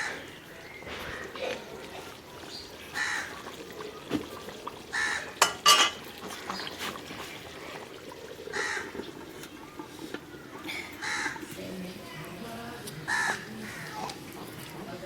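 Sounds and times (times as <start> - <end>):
crows cawing: 2.9 - 3.4, 4.9 - 5.6, 8.5 - 9.0, 10.7 - 11.5, 13.1 - 14.2.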